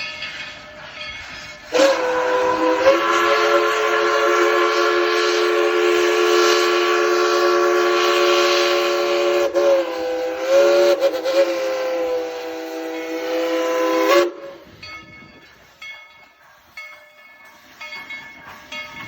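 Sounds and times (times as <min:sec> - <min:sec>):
steam locomotive whistle: 0:01.6 - 0:14.8.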